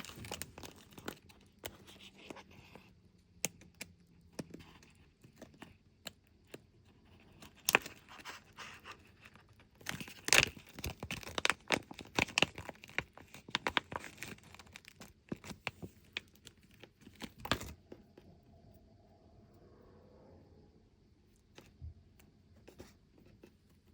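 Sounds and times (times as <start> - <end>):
packaging tearing and crinkling: 0.0 - 2.0, 7.4 - 17.8.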